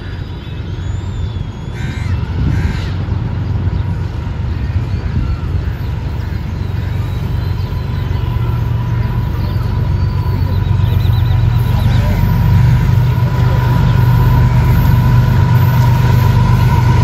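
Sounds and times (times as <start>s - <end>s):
passing train rumble: 0.0s - 17.0s
crow cawing: 1.8s - 3.0s.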